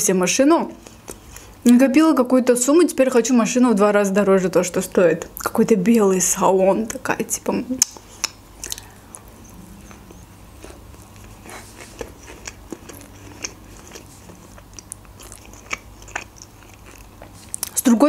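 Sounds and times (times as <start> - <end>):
wet mouth clicks and smacks: 7.8 - 9.3
person biting and chewing: 7.8 - 17.8.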